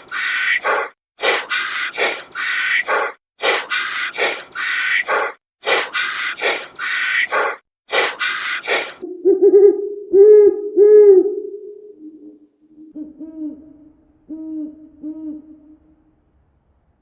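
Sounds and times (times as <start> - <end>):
harsh raspy animal calls: 0.0 - 9.0
owl hooting: 0.0 - 16.0.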